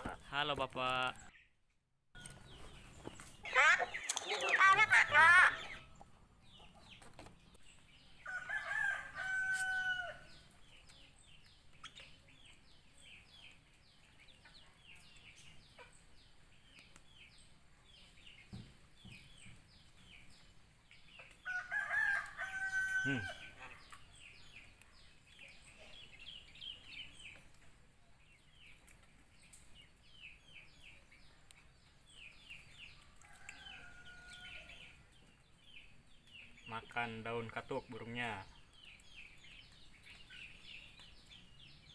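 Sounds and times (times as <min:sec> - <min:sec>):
small birds chirping: 0:00.0 - 0:41.9
rooster crowing: 0:08.2 - 0:10.4, 0:21.4 - 0:23.6, 0:33.0 - 0:34.9.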